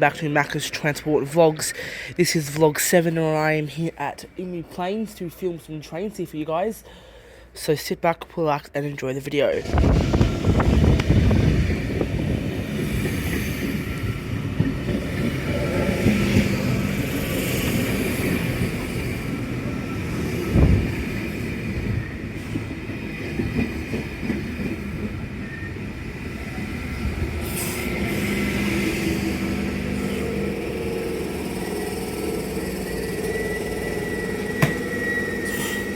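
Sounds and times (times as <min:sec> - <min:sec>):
train wheel rumble: 0:09.6 - 0:35.9
high wheel squeal: 0:27.5 - 0:35.9.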